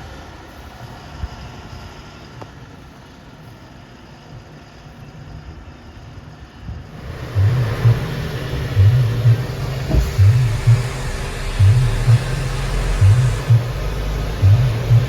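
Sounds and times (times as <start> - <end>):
diesel engine running: 6.9 - 15.0.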